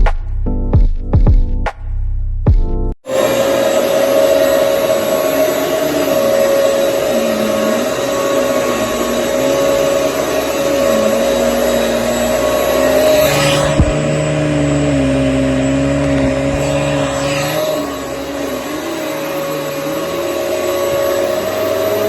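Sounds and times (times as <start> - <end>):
vacuum cleaner running: 3.0 - 22.0.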